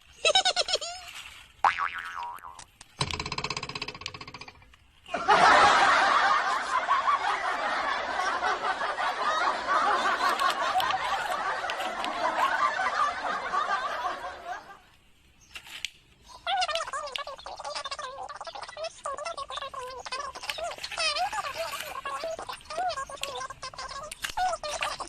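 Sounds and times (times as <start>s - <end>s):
comedy sound effect: 1.6s - 4.6s
canned crowd laughter: 5.1s - 14.9s.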